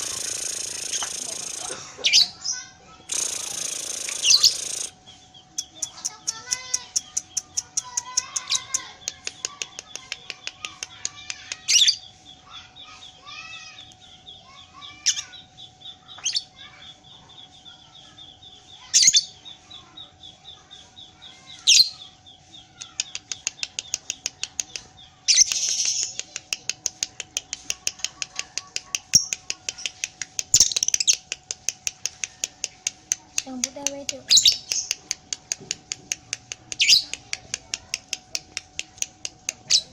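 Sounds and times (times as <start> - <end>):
shrill bird squawks: 0.0 - 4.9
lovebird chattering: 0.0 - 13.0, 20.6 - 39.9.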